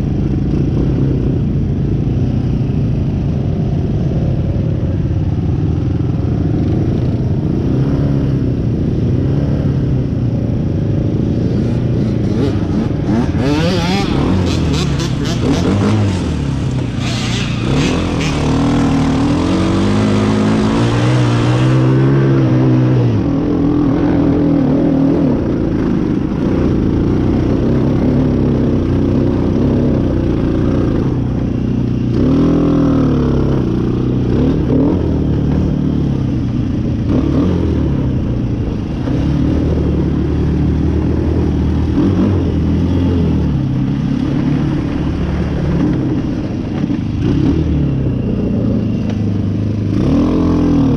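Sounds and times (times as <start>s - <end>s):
off-road vehicle engine revving: 11.7s - 25.5s, 37.1s - 48.7s, 49.9s - 50.9s.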